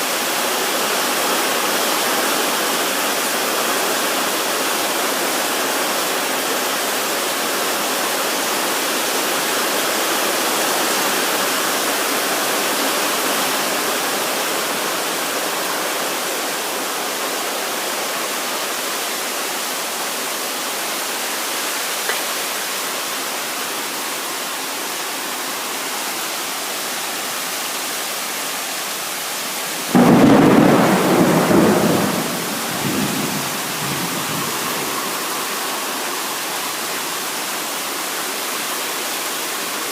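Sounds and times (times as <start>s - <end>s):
heavy rain falling: 0.0s - 39.9s
thunder clap rumbling: 29.9s - 35.0s.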